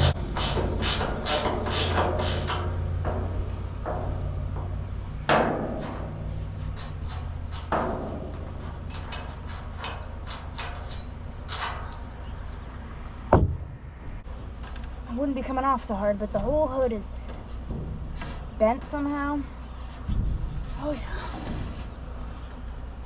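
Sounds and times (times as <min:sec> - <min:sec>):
metallic knocks: 0:00.0 - 0:12.2
steady low hum: 0:00.0 - 0:23.0.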